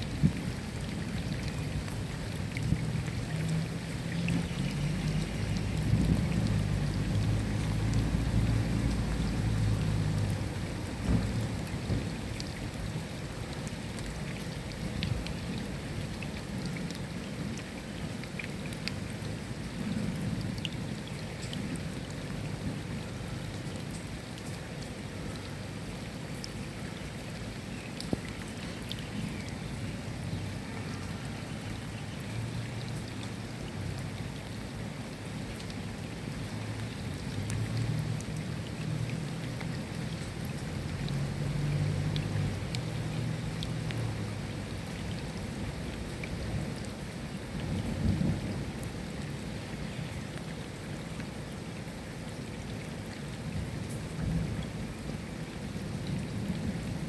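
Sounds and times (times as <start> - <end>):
raindrops ticking: 0.0 - 57.0
steady rain hiss: 0.0 - 57.0
low rumble of thunder: 4.2 - 12.4, 47.5 - 49.2, 53.6 - 55.2.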